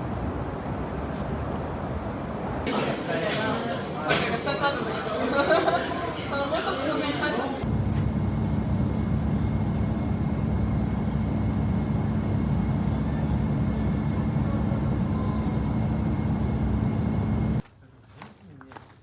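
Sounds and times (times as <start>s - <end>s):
vehicle rumble: 7.5s - 17.6s.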